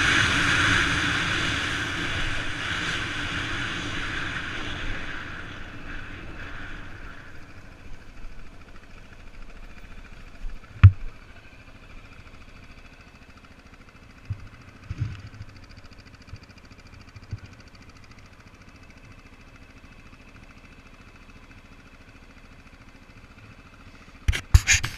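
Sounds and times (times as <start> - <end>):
vehicle engine running: 0.0 - 24.9
sharp thumps: 10.8 - 11.2.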